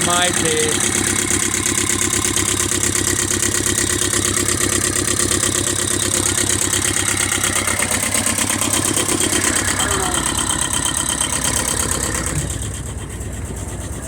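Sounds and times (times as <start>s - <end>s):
marine engine idling: 0.0s - 14.0s.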